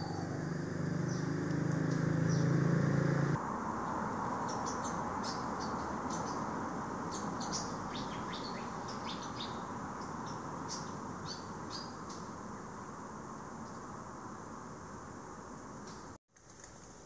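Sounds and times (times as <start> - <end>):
small songbird chirping: 0.0 - 2.6, 3.8 - 12.4
steady background hiss: 3.2 - 17.0.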